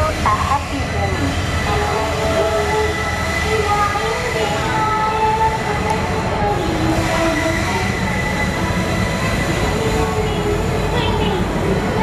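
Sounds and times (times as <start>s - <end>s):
wheels rumbling on rails: 0.0s - 12.0s
wheels squealing on track: 6.4s - 11.2s.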